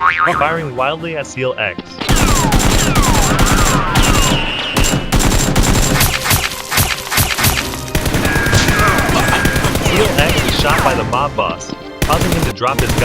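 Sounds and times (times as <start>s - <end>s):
rapid gunfire: 2.0s - 11.0s, 12.0s - 13.0s.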